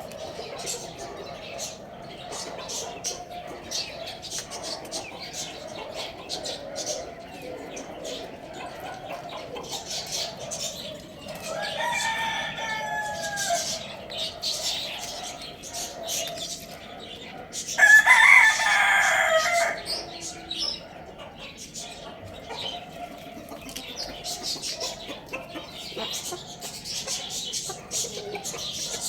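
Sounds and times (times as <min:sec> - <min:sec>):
small birds chirping: 0:00.0 - 0:29.0
rooster crowing: 0:11.4 - 0:14.0, 0:17.8 - 0:20.0.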